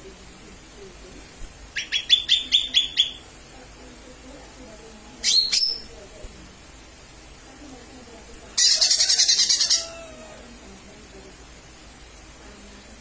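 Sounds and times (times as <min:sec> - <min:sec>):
bird harsh chattering trill: 0:01.8 - 0:03.2.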